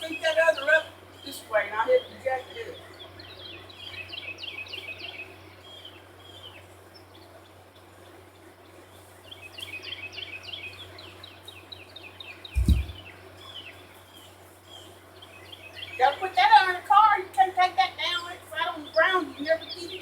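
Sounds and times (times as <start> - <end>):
songbird chirping: 0.0 - 20.0
low thump: 12.6 - 13.0.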